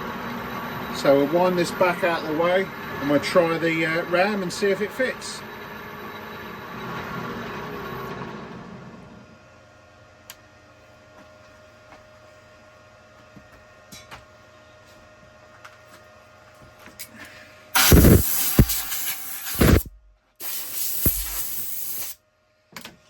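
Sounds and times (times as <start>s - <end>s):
hissing spray blasts: 17.8s - 22.2s.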